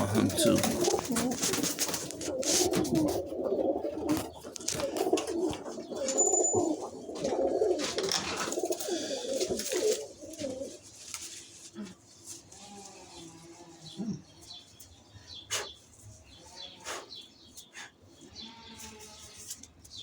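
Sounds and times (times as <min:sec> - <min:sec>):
pigeons cooing: 0:00.0 - 0:12.1
sharp rustles and knocks: 0:00.4 - 0:11.6.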